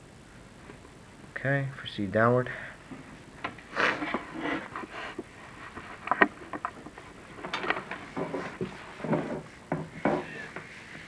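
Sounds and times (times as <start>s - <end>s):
camera rod scraping in chimney flue: 3.7s - 11.0s.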